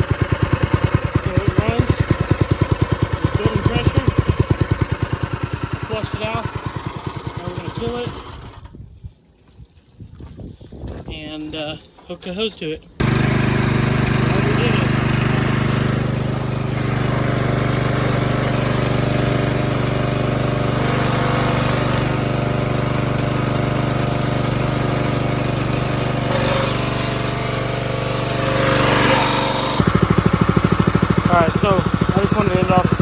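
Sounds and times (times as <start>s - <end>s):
small engine running: 0.0s - 8.8s, 13.0s - 33.0s
pressure washer hiss: 13.0s - 33.0s.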